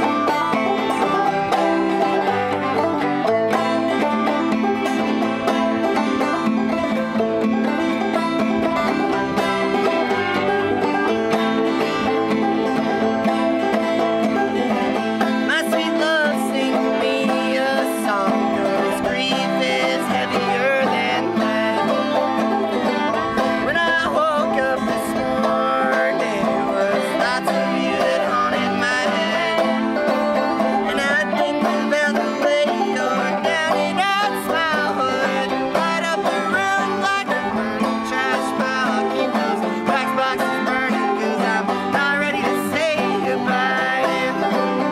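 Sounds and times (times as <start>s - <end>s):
acoustic string band playing: 0.0s - 44.9s
banjo picking: 0.0s - 44.9s.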